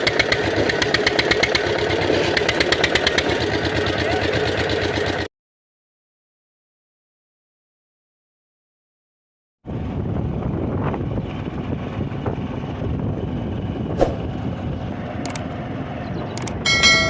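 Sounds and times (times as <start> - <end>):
tractor diesel engine running: 0.0 - 5.3, 9.8 - 17.0
short clicks: 15.2 - 15.4, 16.3 - 16.6.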